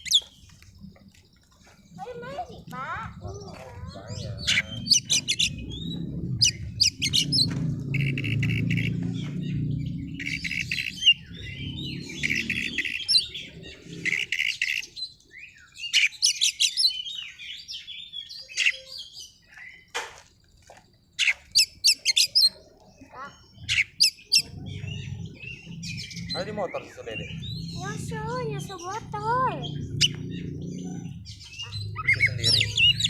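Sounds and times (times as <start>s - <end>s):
bird chirping and trilling: 0.0s - 20.0s, 21.2s - 33.0s
low rumble: 3.0s - 14.1s, 24.4s - 33.0s.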